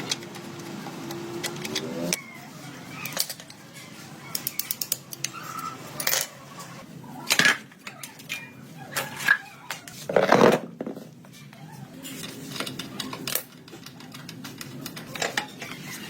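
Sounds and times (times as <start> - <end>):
metal parts clicking and clinking: 3.0 - 3.7, 4.3 - 6.4, 12.0 - 16.0.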